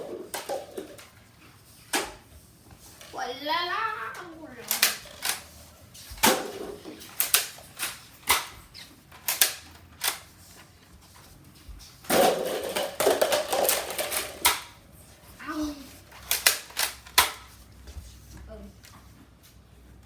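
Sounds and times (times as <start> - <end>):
toy blaster rattling: 4.5 - 5.6, 12.1 - 14.7, 16.1 - 17.4
toy blaster clicks and pops: 4.6 - 5.4, 7.1 - 8.5, 9.2 - 10.2, 16.3 - 17.4.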